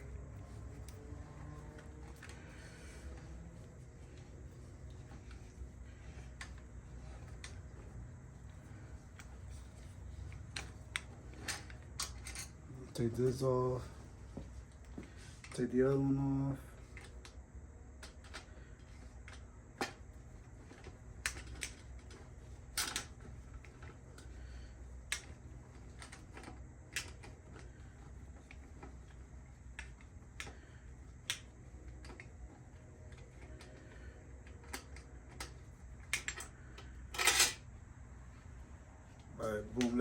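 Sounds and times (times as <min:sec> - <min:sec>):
metal bicycle parts clinking: 0:08.5 - 0:13.0, 0:34.6 - 0:37.6.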